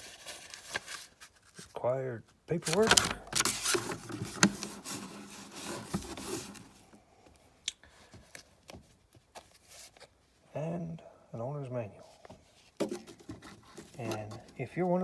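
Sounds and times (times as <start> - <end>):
paper rustling: 0.0 - 1.8, 2.6 - 7.0, 12.4 - 15.0.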